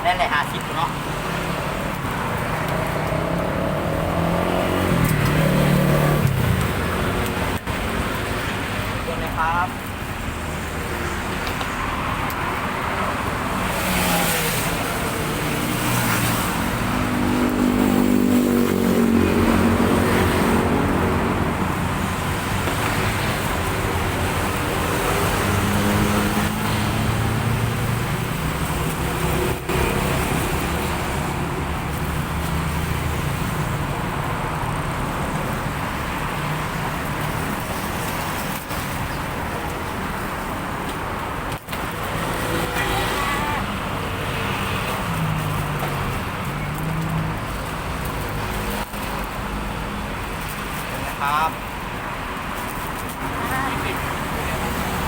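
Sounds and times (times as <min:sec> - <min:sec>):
road traffic rumble: 0:00.0 - 0:55.0
vehicle engine passing: 0:01.2 - 0:07.2, 0:13.6 - 0:35.3.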